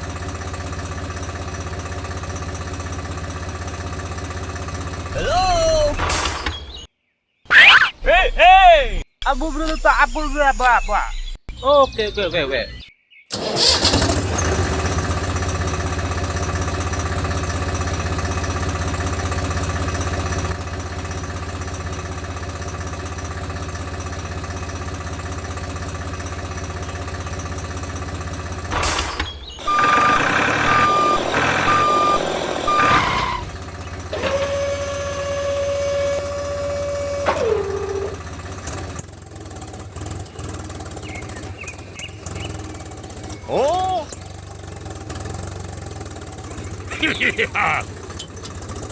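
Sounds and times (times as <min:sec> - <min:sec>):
engine running steadily: 0:00.0 - 0:06.4, 0:13.3 - 0:48.9
short high beeps: 0:29.7 - 0:33.4.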